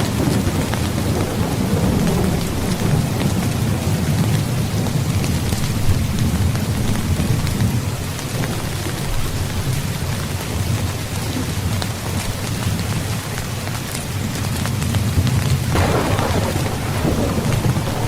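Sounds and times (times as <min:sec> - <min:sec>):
low rumble of thunder: 0:00.0 - 0:09.7, 0:14.8 - 0:18.0
heavy rain falling: 0:00.0 - 0:18.0.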